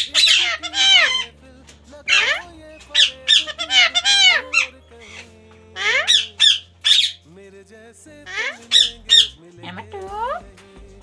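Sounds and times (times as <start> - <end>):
parrot squawking: 0.0 - 1.4, 2.0 - 7.3, 8.3 - 10.4.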